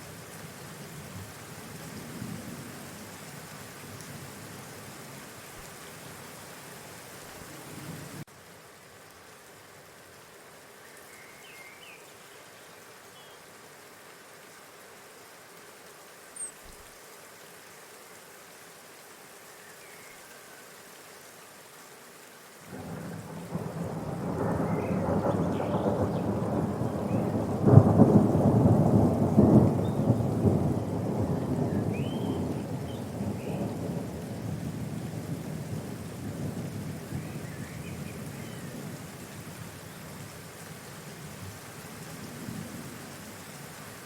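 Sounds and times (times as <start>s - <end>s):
faint bird chirps: 31.6s - 33.6s.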